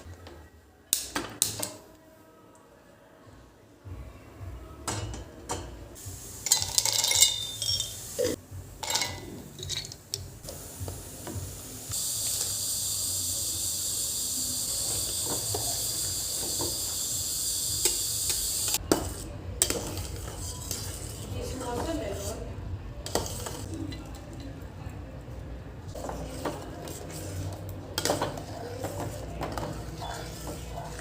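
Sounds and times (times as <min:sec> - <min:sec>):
kitchen utensils and dishes clattering: 0:04.8 - 0:10.2, 0:17.8 - 0:22.4, 0:23.0 - 0:24.2, 0:25.9 - 0:31.0
food sizzling in hot oil: 0:10.5 - 0:18.8.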